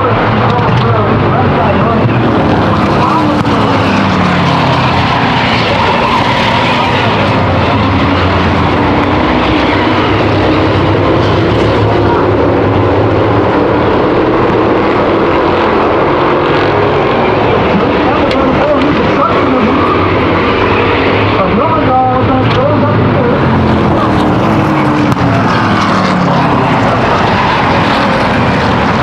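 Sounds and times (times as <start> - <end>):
race car engines lapping: 0.0 - 29.0.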